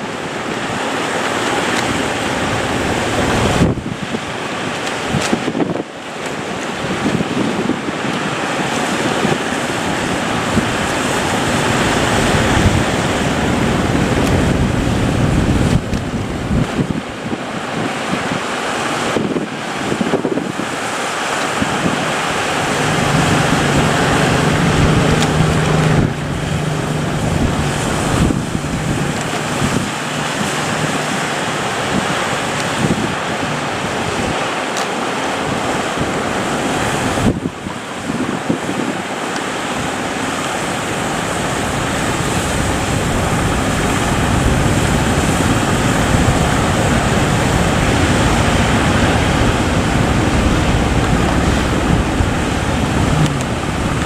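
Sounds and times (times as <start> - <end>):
sea surf breaking: 0.0 - 54.0
wind buffeting microphone: 0.0 - 54.0
low rumble: 41.2 - 54.0.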